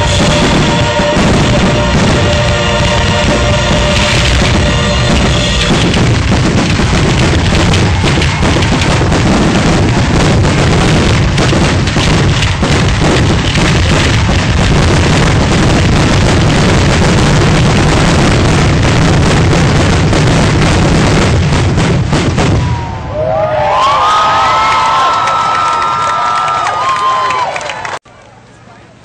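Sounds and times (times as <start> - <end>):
song music: 0.0 - 11.4
fireworks bursts and bangs: 0.0 - 23.0.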